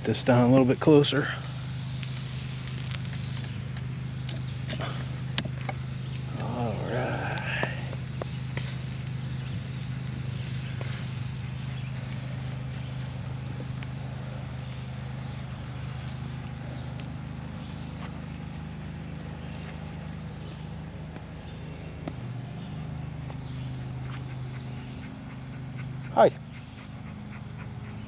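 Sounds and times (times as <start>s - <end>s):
low motor-like hum: 0.0s - 28.0s
bacon sizzling over a campfire: 0.9s - 18.3s
faint pops: 1.4s - 6.6s.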